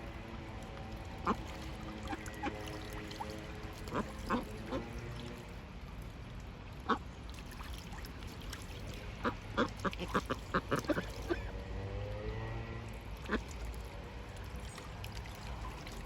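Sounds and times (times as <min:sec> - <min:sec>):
ducks quacking: 0:09.2 - 0:11.6.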